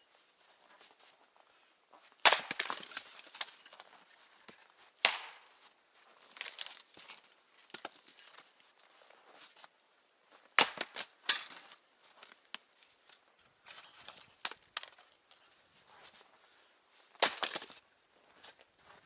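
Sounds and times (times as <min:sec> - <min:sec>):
sharp wooden cracks and knocks: 0:02.2 - 0:03.8, 0:05.0 - 0:05.5, 0:06.3 - 0:08.4, 0:10.6 - 0:12.4, 0:13.7 - 0:15.1, 0:17.2 - 0:17.8.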